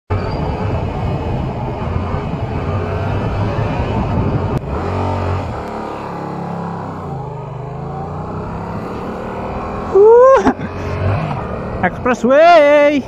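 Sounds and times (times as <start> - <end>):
wind noise on microphone: 0.1 - 4.8.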